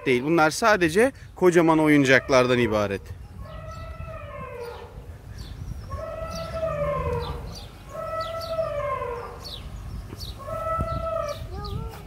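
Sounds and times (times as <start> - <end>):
drawn-out animal calls: 5.9 - 9.6.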